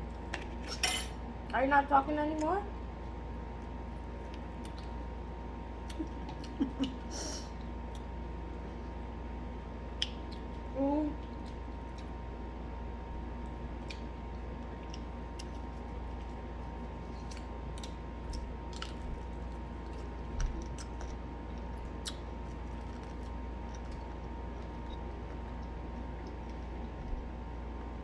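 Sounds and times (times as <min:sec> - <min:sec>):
steady low hum: 0:00.0 - 0:28.0
person chewing: 0:13.4 - 0:27.0.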